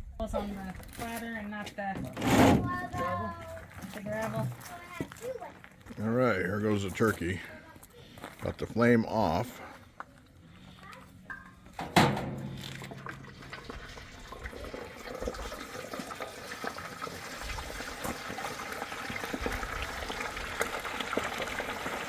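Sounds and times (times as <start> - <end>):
sharp metal clank: 11.3 - 13.9
hot oil bubbling and crackling: 12.4 - 22.0.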